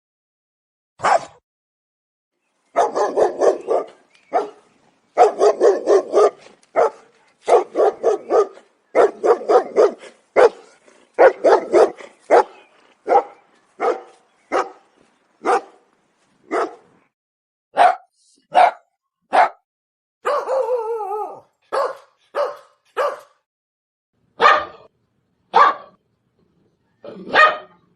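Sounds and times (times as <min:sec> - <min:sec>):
dog barking: 0:01.0 - 0:01.4, 0:02.8 - 0:04.6, 0:05.2 - 0:14.8, 0:15.4 - 0:15.8, 0:16.5 - 0:16.9, 0:17.8 - 0:19.6, 0:20.2 - 0:20.8, 0:21.7 - 0:23.4, 0:24.4 - 0:24.9, 0:25.5 - 0:26.0, 0:27.2 - 0:27.8.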